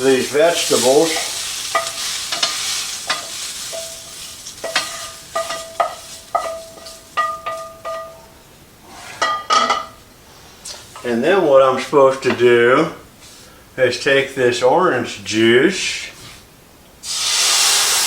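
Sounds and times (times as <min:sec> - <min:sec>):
utensil scraping and knocking skillet: 0:00.0 - 0:10.0
vegetables sizzling: 0:00.0 - 0:10.0, 0:17.0 - 0:18.0.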